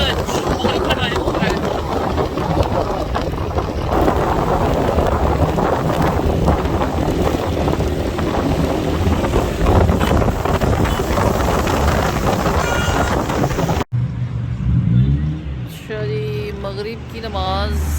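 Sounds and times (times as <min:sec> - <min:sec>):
wind buffeting microphone: 0:00.0 - 0:14.0
road and engine noise: 0:00.0 - 0:17.9.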